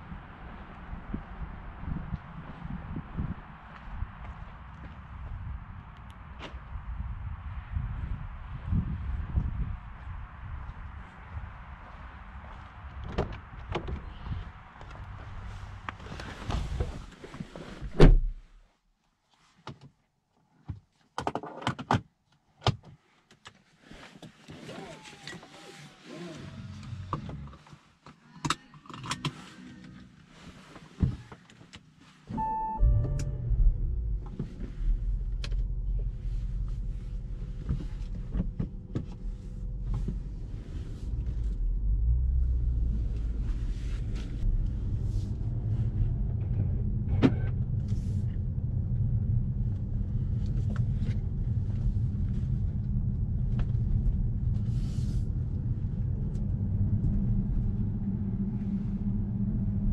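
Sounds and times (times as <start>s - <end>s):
car engine starting and rumbling: 0.0s - 17.1s, 32.0s - 59.9s.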